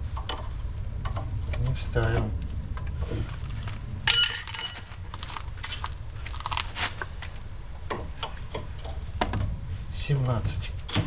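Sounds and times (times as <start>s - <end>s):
wrench clanking against metal: 4.1s - 5.9s.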